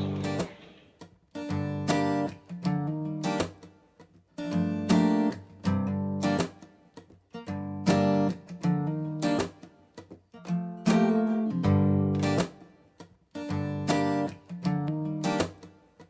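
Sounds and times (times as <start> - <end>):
acoustic guitar strumming chords: 0.0 - 3.7, 4.4 - 6.8, 7.4 - 9.8, 10.4 - 12.7.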